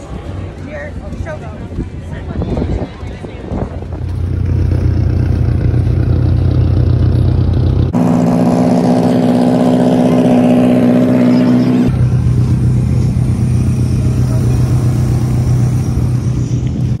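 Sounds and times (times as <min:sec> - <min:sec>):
car engines idling: 0:03.8 - 0:17.0.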